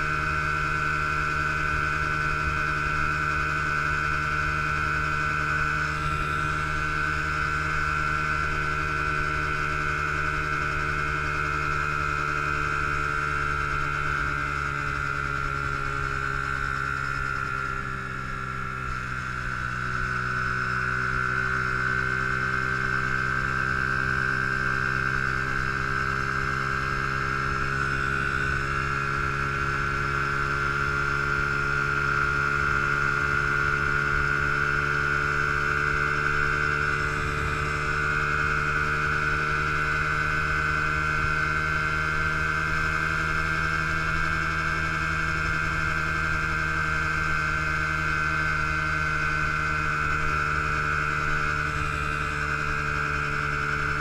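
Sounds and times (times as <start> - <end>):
motorbike engine running: 0.0 - 54.0.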